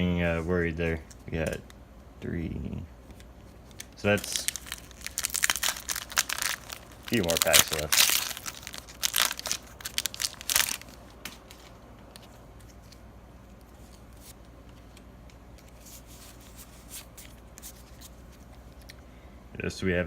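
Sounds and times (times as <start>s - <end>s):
faint handling noises: 3.0s - 19.1s
foil wrapper tearing: 3.6s - 11.0s.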